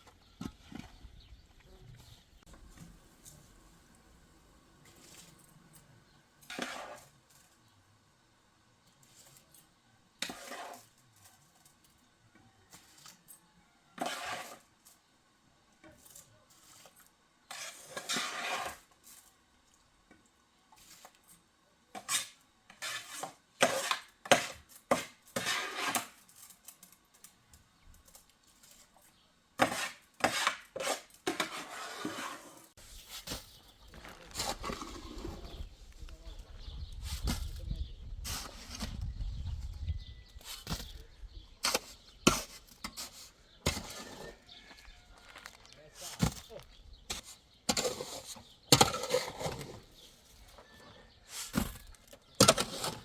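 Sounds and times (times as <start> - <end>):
hard objects scraping and clinking: 20.8 - 35.7, 47.1 - 53.0.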